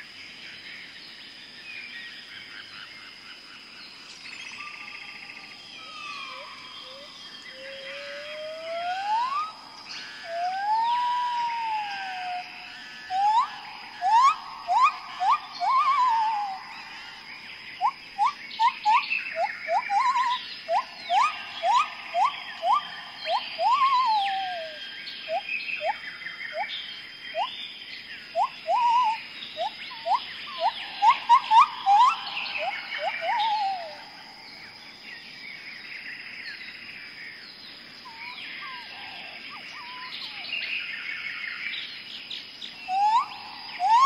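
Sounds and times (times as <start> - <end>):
birds whistling calls: 4.3 - 27.7, 28.3 - 34.7, 38.0 - 41.7, 42.6 - 44.0.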